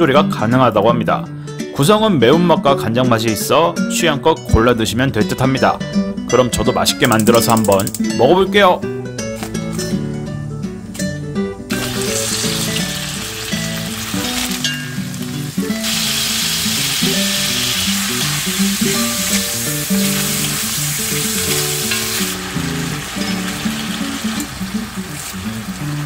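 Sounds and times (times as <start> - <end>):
soft plucked guitar music: 0.0 - 26.0
food sizzling in a pan: 11.7 - 26.0.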